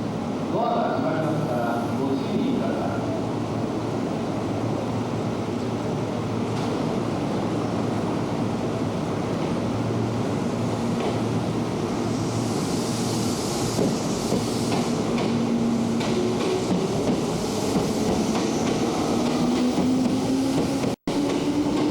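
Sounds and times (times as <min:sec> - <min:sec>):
electric train rumble and hum: 0:02.5 - 0:21.9
hiss: 0:11.7 - 0:19.2.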